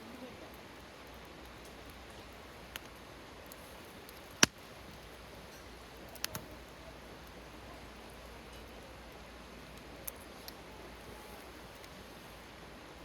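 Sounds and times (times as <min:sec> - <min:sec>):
campfire crackling and popping: 0:00.0 - 0:13.0
faint steady hiss: 0:00.0 - 0:13.0.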